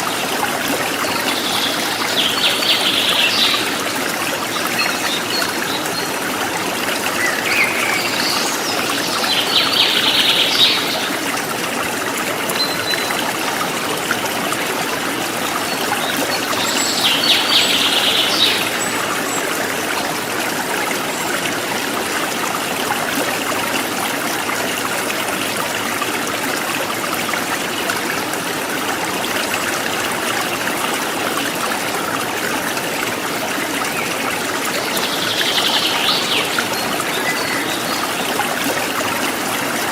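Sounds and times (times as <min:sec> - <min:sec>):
river water flowing: 0:00.0 - 0:39.9
birds calling: 0:34.7 - 0:38.7.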